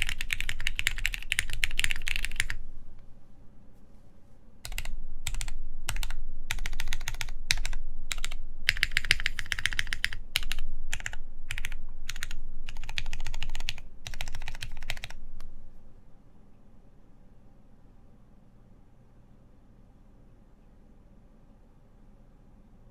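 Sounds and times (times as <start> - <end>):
fast typing on mechanical keyboard: 0.0 - 2.7, 4.6 - 15.6.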